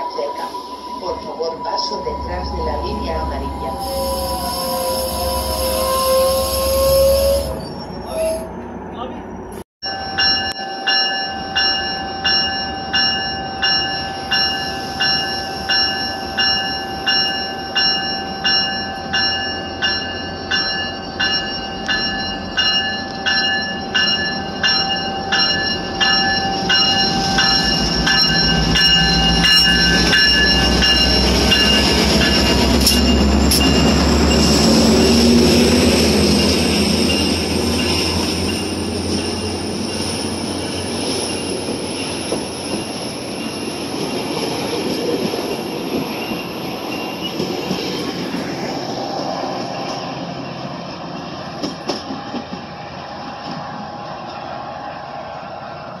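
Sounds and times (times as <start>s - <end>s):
high wheel squeal: 0.0s - 9.2s, 23.1s - 43.8s
train rumbling past: 0.0s - 56.0s
warning bell dinging: 9.8s - 35.2s.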